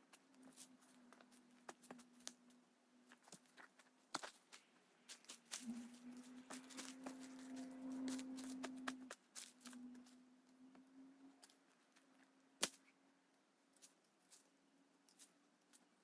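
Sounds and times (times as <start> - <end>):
burning wood crackling: 0.0 - 10.6
low steady hum: 0.0 - 15.1.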